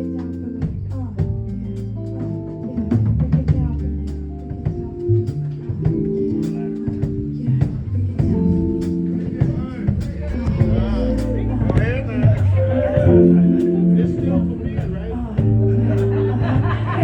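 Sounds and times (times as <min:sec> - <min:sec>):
drum kit beat: 0:00.0 - 0:17.0
guitar: 0:00.0 - 0:17.0
saxophone melody: 0:10.4 - 0:15.8.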